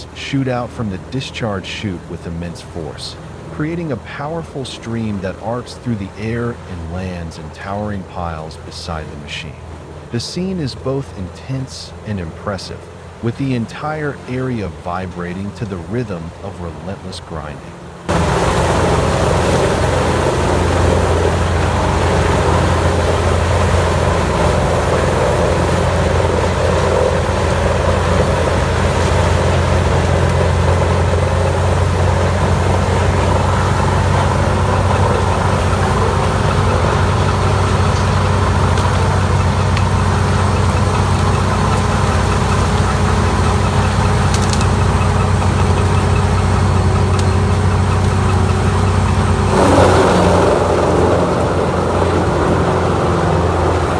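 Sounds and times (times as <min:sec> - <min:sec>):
wood grinder engine humming: 0:17.7 - 0:53.9.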